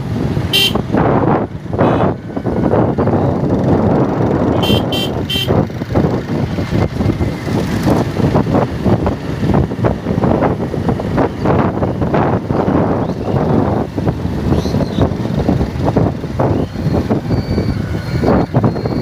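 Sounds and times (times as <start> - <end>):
motorcycle riding: 0.0 - 19.0
wind rushing over microphone: 0.0 - 19.0
motorcycle horn beeps: 0.5 - 0.8, 1.8 - 2.2, 4.5 - 5.6.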